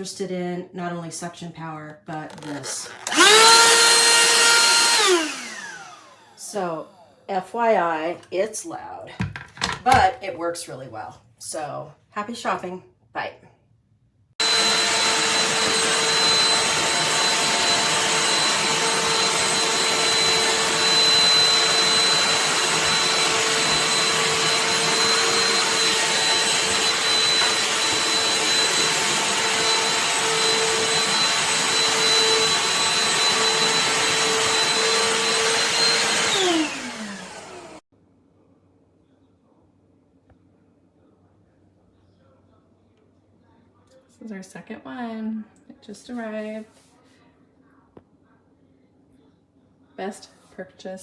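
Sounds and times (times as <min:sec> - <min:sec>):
handheld vacuum whining: 0:02.1 - 0:07.2, 0:14.4 - 0:37.8.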